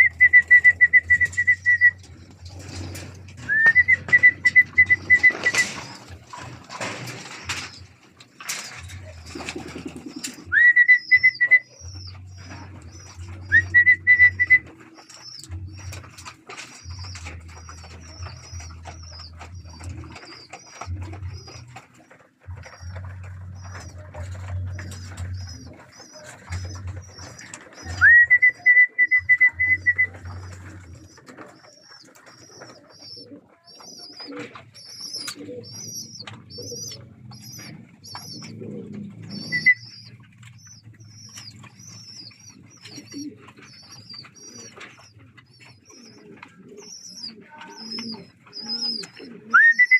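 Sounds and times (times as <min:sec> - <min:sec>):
shrill whistled trills: 0:00.0 - 0:02.0, 0:03.5 - 0:06.0, 0:13.4 - 0:15.4, 0:39.3 - 0:40.1, 0:49.5 - 0:49.9
pigeons cooing: 0:00.0 - 0:49.9
wings flapping: 0:00.0 - 0:49.9.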